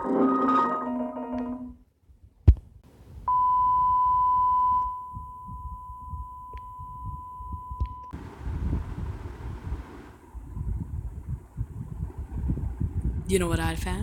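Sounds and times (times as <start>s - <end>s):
faint low rumble: 2.2s - 13.3s.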